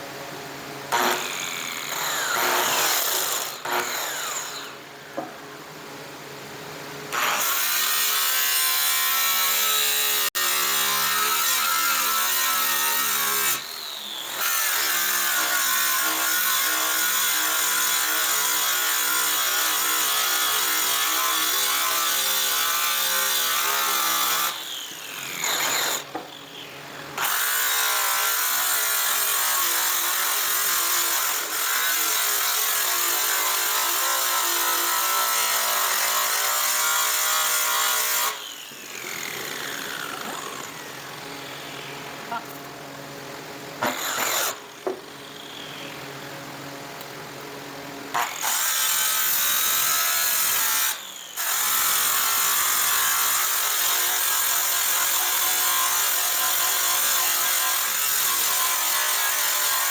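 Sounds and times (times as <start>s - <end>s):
electric polishing tool buffing metal: 7.2s - 26.2s, 27.2s - 42.4s, 48.2s - 59.9s.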